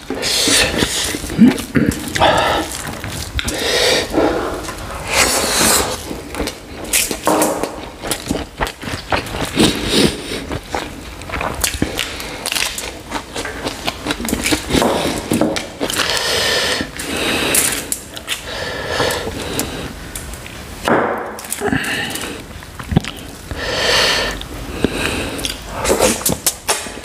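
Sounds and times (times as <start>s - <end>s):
wet chewing with mouth clicks: 0.0s - 20.6s, 21.4s - 26.9s.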